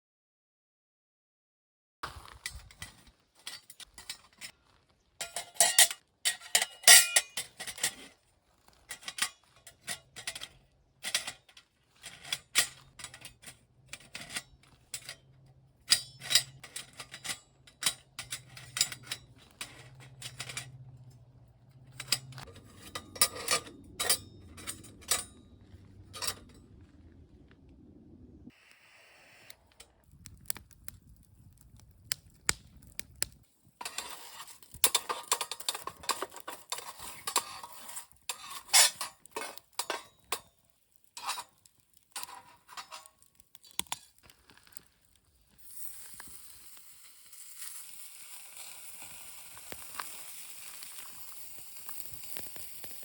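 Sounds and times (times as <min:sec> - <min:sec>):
metal grill parts clinking: 0:02.4 - 0:26.6, 0:33.8 - 0:44.2.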